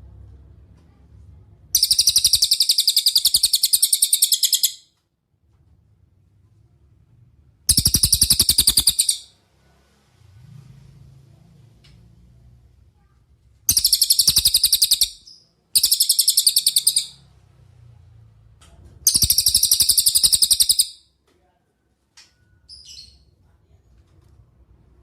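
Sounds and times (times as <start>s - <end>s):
songbird rattling trills: 1.8s - 4.8s, 7.7s - 9.3s, 13.7s - 17.2s, 19.1s - 21.0s.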